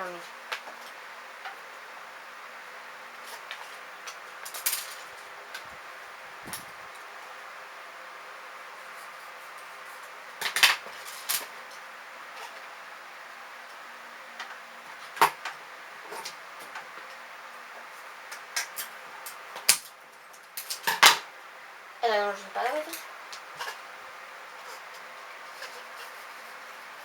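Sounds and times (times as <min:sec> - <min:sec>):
clicks and rustles of handling: 0:03.2 - 0:05.8, 0:24.6 - 0:27.0.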